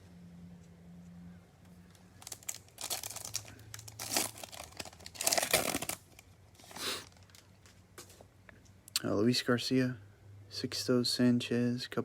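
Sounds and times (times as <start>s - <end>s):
foil wrapper tearing and crinkling: 2.1s - 7.5s.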